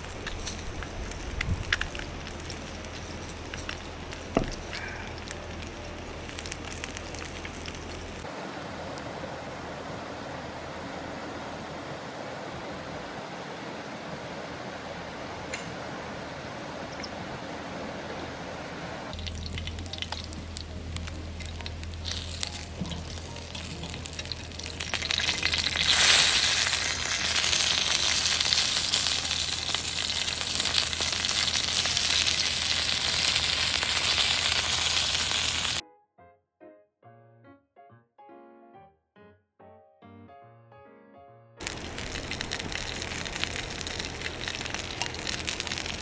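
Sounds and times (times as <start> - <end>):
music: 0.1 - 8.3, 19.1 - 46.0
food sizzling in a pan: 19.1 - 35.8, 41.6 - 46.0.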